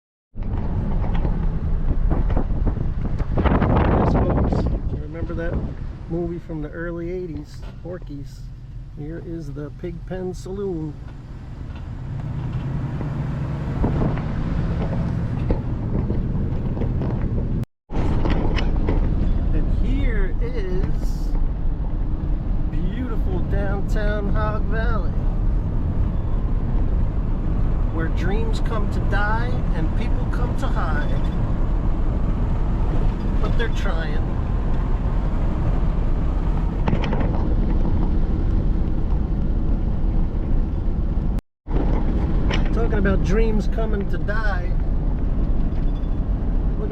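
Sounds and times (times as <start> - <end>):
wind on microphone: 0.4 - 6.4, 11.8 - 33.5
car engine and road hum: 0.4 - 46.9.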